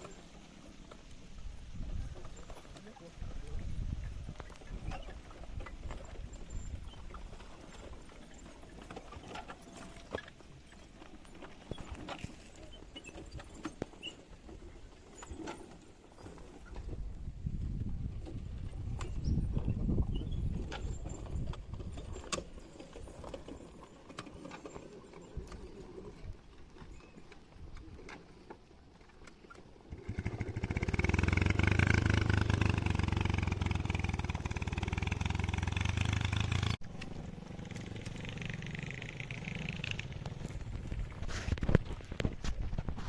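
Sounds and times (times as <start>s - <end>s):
motorcycle engine running: 29.9s - 42.2s.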